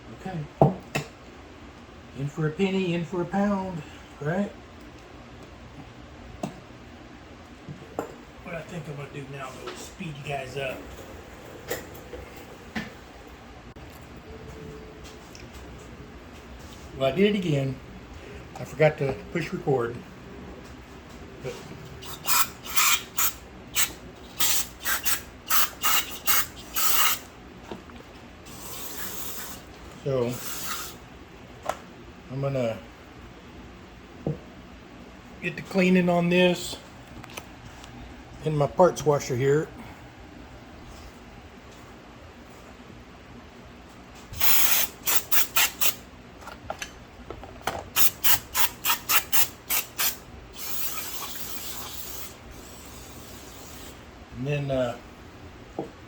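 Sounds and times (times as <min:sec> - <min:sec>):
hissing spray squirts: 0:22.0 - 0:27.2, 0:44.4 - 0:46.0, 0:48.0 - 0:54.0
quick hissing strokes: 0:48.0 - 0:54.0.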